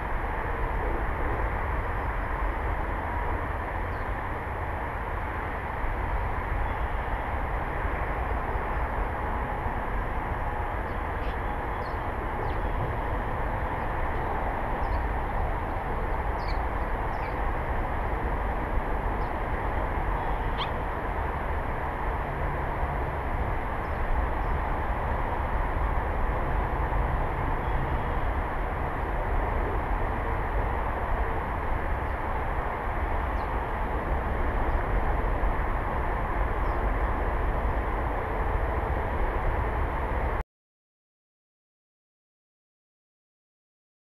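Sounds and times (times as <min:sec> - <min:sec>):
steady outdoor rumble: 0:00.0 - 0:40.4
faint bird chirps: 0:20.2 - 0:20.8.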